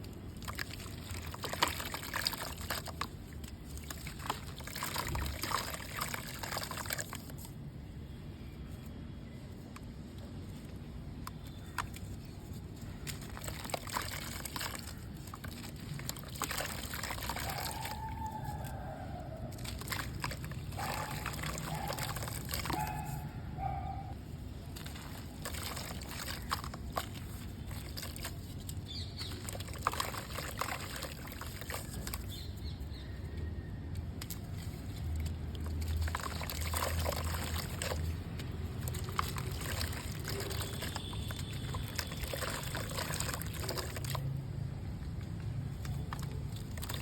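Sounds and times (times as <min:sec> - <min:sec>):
pouring trickling water: 0:00.0 - 0:07.5, 0:12.9 - 0:23.1, 0:24.6 - 0:33.0, 0:34.2 - 0:47.0
gritty crackles of crumbling mud: 0:11.3 - 0:23.2, 0:24.6 - 0:47.0.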